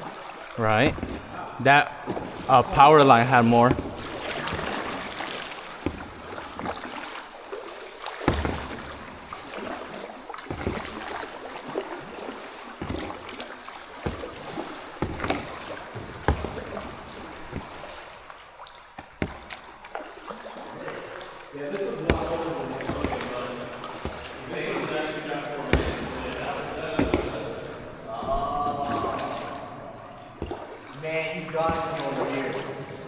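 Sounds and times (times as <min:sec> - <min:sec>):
paddle splashing and dripping: 0:00.0 - 0:33.0
sharp knocks: 0:25.7 - 0:29.6.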